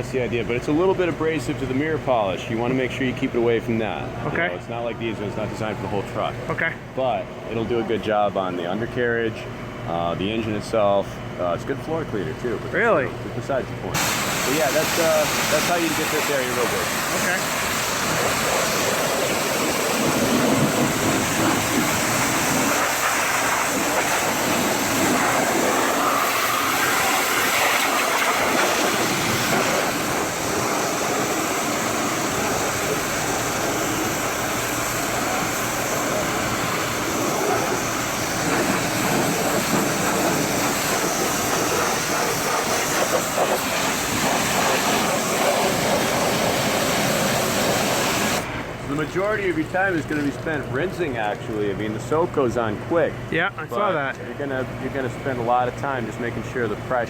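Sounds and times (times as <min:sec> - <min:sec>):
pressure washer spraying: 0:14.0 - 0:48.6.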